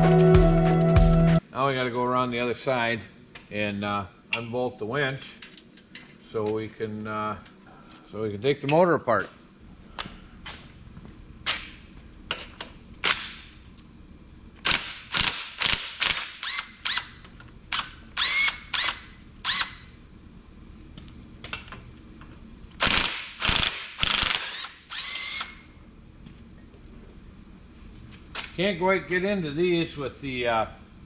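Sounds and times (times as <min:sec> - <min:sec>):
ratchet wrench clicking: 0:14.7 - 0:19.8, 0:22.8 - 0:25.6.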